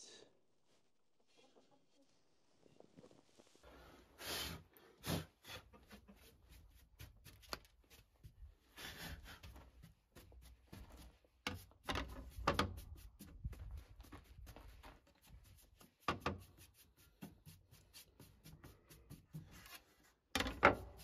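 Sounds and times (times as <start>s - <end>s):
wooden objects knocking and rubbing: 9.2s - 21.0s.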